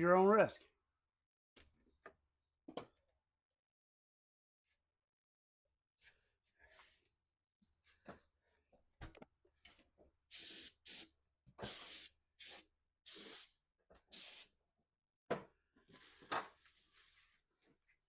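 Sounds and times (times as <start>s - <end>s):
aerosol spray can hissing: 10.3s - 13.5s, 14.1s - 14.5s.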